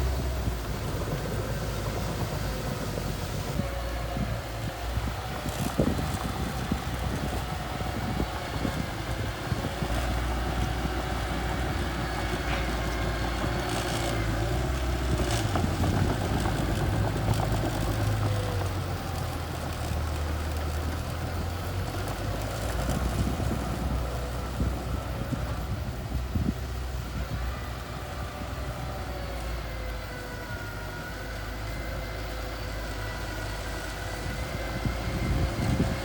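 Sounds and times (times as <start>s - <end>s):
bulldozer diesel engine rumbling: 0.0s - 36.0s.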